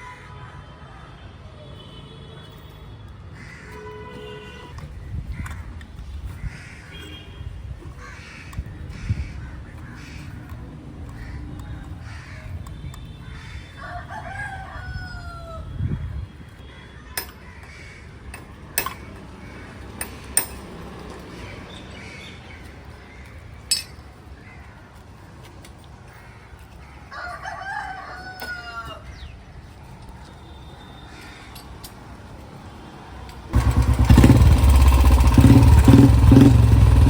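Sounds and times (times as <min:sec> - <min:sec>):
rooster crowing: 0:13.8 - 0:15.7, 0:27.1 - 0:29.1.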